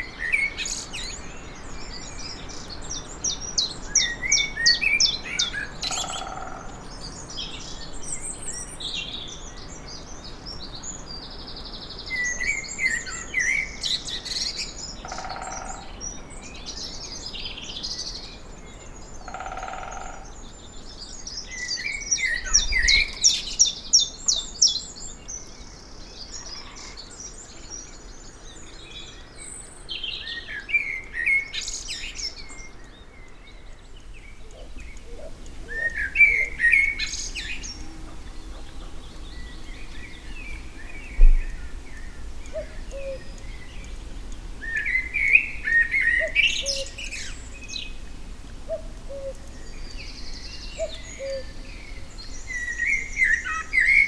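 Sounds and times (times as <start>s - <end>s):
songbirds singing and chirping: 0.0s - 54.0s
faint low bird calls: 19.0s - 54.0s.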